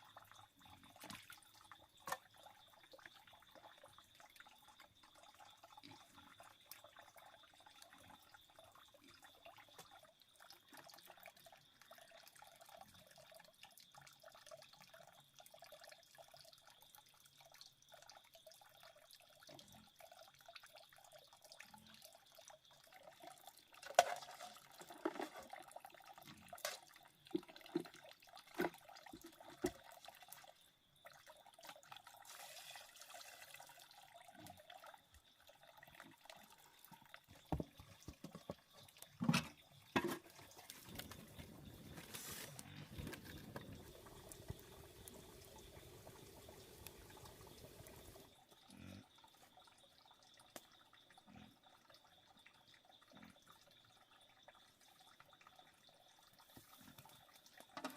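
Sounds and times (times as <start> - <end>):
trickling stream: 0.0 - 57.9
knocks and splashes: 37.4 - 45.1.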